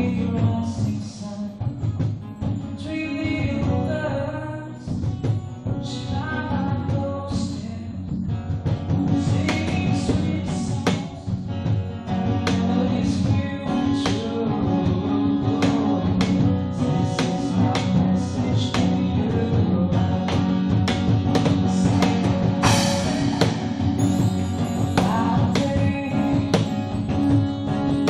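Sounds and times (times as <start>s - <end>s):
strummed acoustic guitar: 0.0s - 28.0s
person singing: 9.0s - 11.4s, 12.1s - 20.5s, 21.9s - 28.0s.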